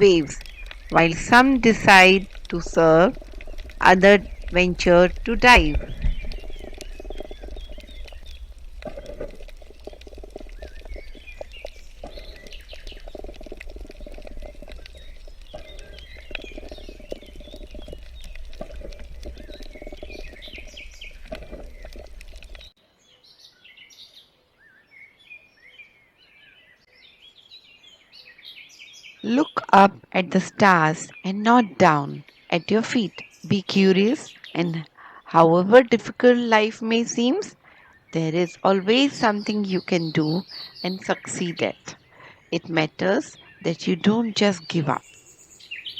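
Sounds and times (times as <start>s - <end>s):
steady low rumble: 0.0s - 22.7s
small birds chirping: 0.0s - 45.9s.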